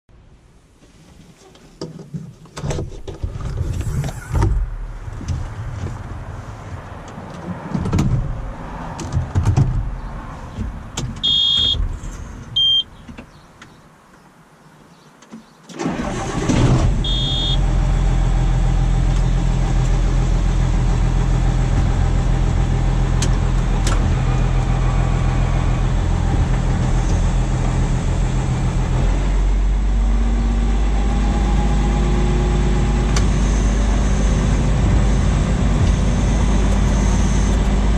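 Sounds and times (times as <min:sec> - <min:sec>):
short electronic beeps: 0:11.2 - 0:11.8, 0:12.6 - 0:13.0, 0:17.0 - 0:17.6.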